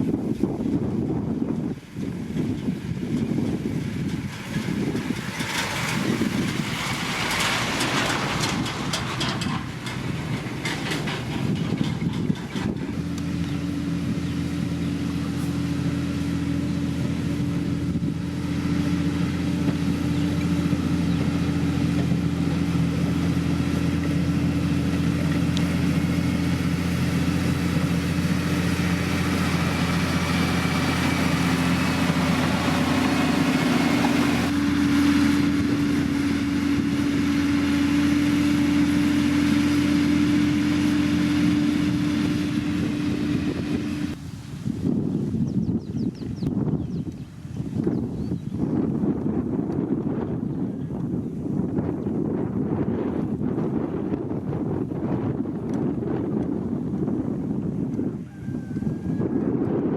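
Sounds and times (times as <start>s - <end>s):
rough noisy rumble: 0.0s - 59.9s
heavy diesel engine idling: 2.4s - 44.2s.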